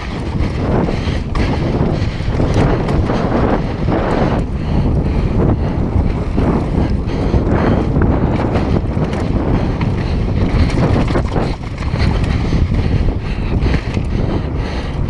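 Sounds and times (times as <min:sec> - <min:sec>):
bike clattering over rough trail: 0:00.0 - 0:15.0
wind buffeting microphone: 0:00.0 - 0:15.0.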